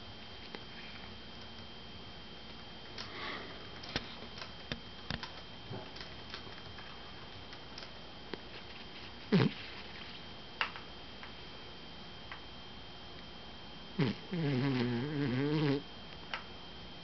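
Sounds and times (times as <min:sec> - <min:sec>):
soft snuffling breath: 0:14.0 - 0:15.8.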